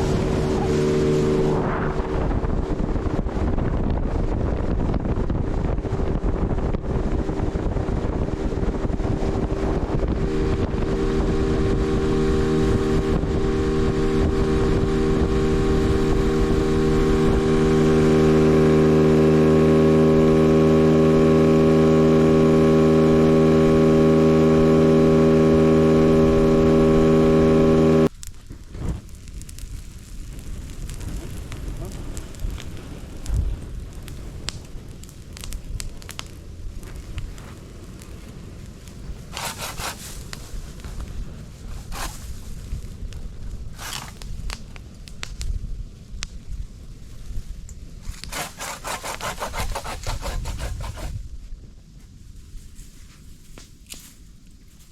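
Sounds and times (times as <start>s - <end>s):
water rushing: 0.0s - 3.2s
outboard motor running: 0.0s - 28.1s, 39.3s - 40.1s
wind: 0.0s - 54.9s.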